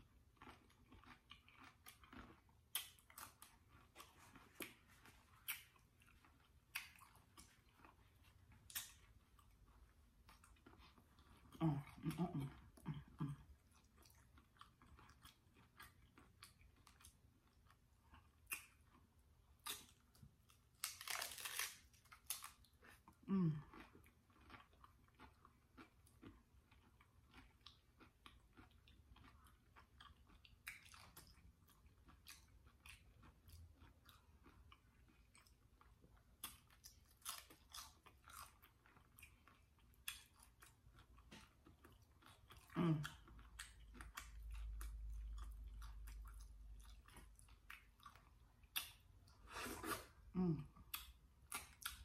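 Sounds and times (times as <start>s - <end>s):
crunching taco shell: 19.6s - 23.0s.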